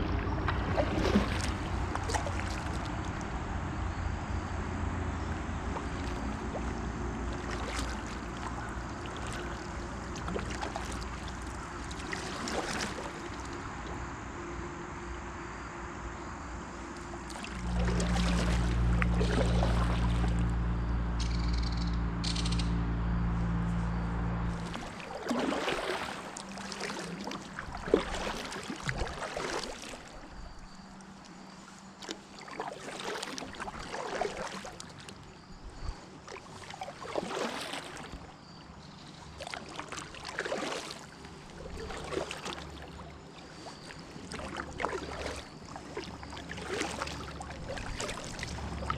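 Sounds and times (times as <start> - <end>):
kayak paddle strokes in water: 0.0 - 3.5, 5.2 - 14.1, 16.8 - 20.7, 23.3 - 48.9
loud low steady hum: 0.0 - 28.2.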